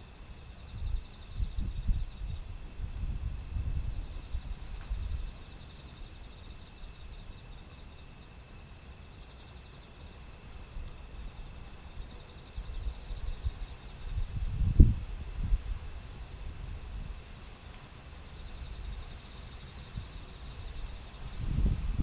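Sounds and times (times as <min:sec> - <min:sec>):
insects trilling: 0:00.0 - 0:22.0
wind rumbling on microphone: 0:00.7 - 0:05.5, 0:12.5 - 0:17.4, 0:18.6 - 0:22.0.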